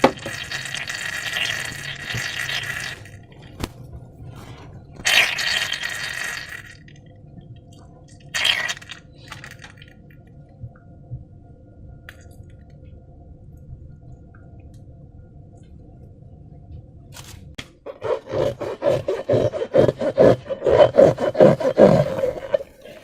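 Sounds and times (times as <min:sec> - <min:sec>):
faint low hum: 0:00.0 - 0:23.0
wet squishing of slime: 0:04.4 - 0:06.8, 0:08.3 - 0:09.8.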